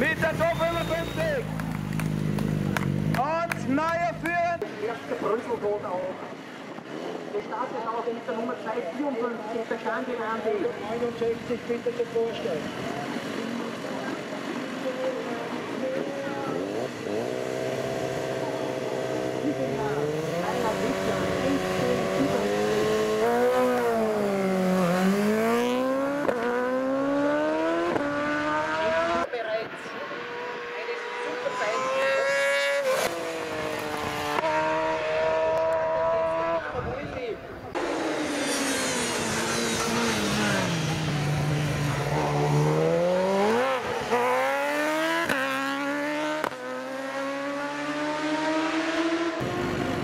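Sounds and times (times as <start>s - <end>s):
superbike engine accelerating: 0.0s - 4.6s, 13.2s - 29.3s, 30.0s - 36.8s, 37.7s - 50.0s.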